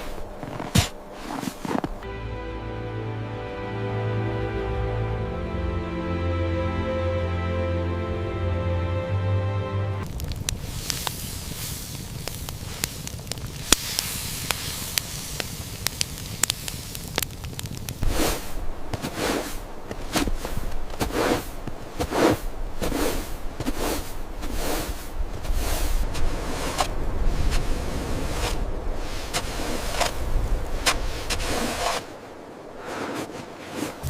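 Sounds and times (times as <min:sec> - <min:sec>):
regular crunching sounds: 0:00.0 - 0:02.1, 0:10.0 - 0:34.0
campfire crackling and popping: 0:10.0 - 0:32.9.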